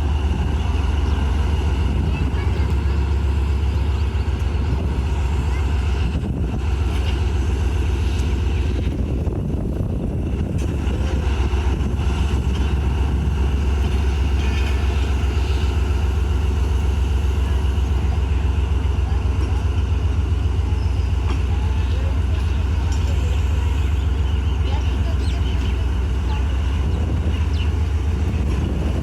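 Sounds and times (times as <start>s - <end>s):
diesel locomotive rumbling: 0.0s - 29.0s.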